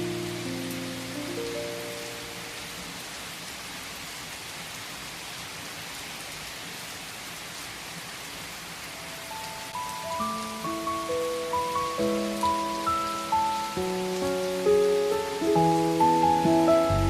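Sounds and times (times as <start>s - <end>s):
rain pattering: 0.0s - 17.0s
soft piano notes: 9.4s - 17.0s.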